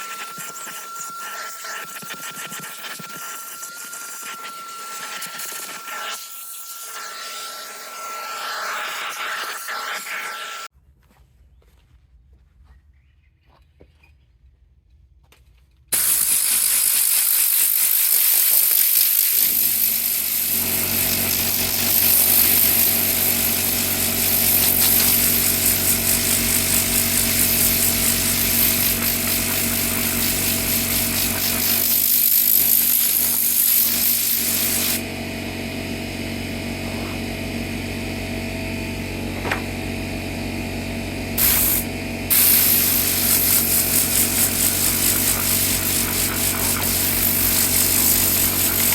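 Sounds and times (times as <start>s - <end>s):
cleaning tool hissing: 0.0s - 10.7s, 16.0s - 35.0s, 41.4s - 48.9s
motor hum: 16.0s - 48.9s.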